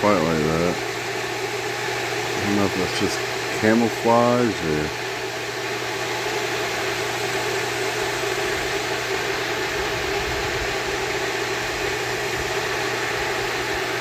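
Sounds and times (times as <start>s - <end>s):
steady mechanical hum: 0.0s - 14.0s
constant hiss: 2.2s - 5.0s.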